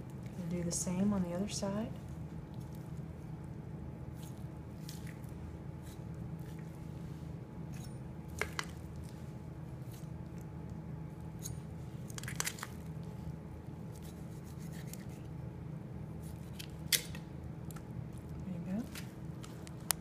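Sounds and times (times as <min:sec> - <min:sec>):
steady low hum: 0:00.0 - 0:20.0
squishy handling of wet meat: 0:02.0 - 0:15.3.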